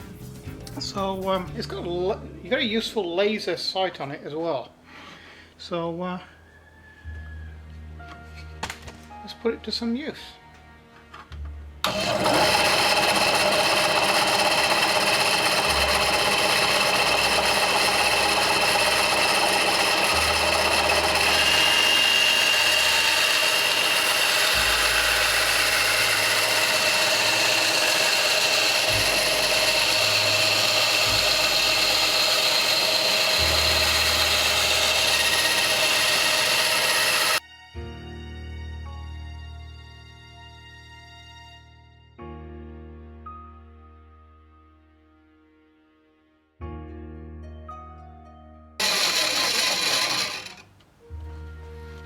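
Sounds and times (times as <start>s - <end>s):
bandsaw cutting wood: 11.8s - 37.4s, 48.8s - 50.7s.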